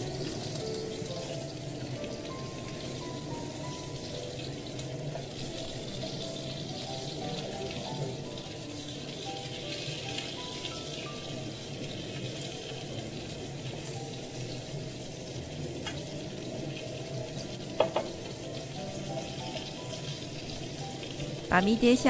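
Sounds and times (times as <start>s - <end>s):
meat sizzling in hot oil: 0.0s - 22.0s
chopsticks knocking against pan: 17.8s - 18.1s.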